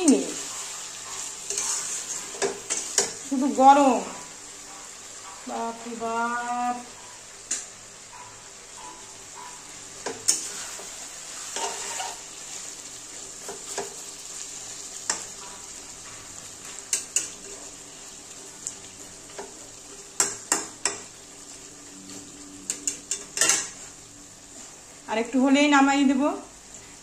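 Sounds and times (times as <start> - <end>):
chicken sizzling in a pan: 0.0 - 27.0
metal spatula scraping a pan: 0.1 - 3.3, 7.0 - 24.9.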